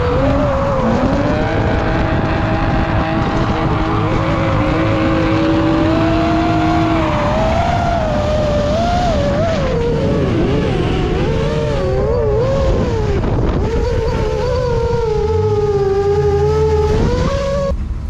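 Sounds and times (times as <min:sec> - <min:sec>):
car engine revving high: 0:00.0 - 0:18.0.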